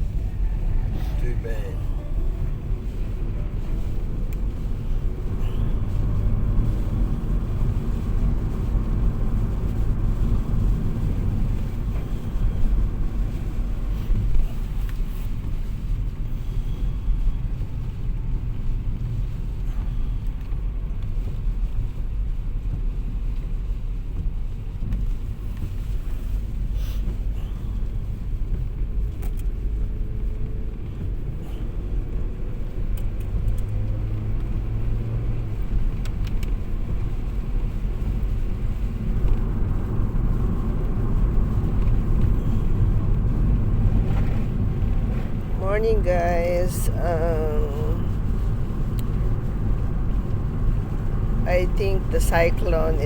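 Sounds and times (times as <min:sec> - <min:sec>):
car engine and tyres rumbling: 0:00.0 - 0:53.0
light ticks: 0:03.8 - 0:04.7, 0:13.3 - 0:15.8, 0:20.2 - 0:22.0, 0:24.1 - 0:26.4, 0:27.8 - 0:31.4, 0:32.6 - 0:39.8, 0:40.4 - 0:45.4, 0:48.1 - 0:50.4.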